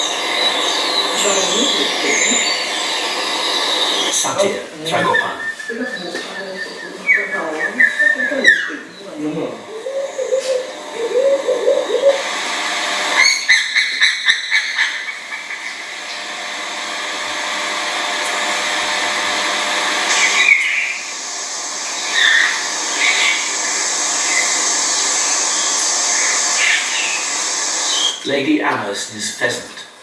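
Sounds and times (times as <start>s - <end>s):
bird calls: 0.0s - 12.4s, 13.1s - 16.3s, 20.0s - 28.3s
steady hiss: 0.0s - 30.0s.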